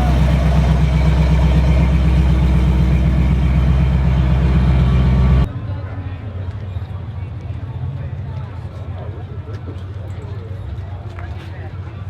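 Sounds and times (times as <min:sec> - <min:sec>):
vehicle engine idling: 0:00.0 - 0:05.5.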